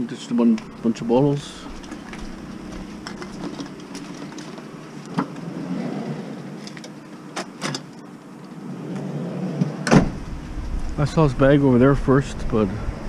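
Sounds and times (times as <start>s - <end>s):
vehicle idling: 0.0s - 7.4s, 10.0s - 13.0s.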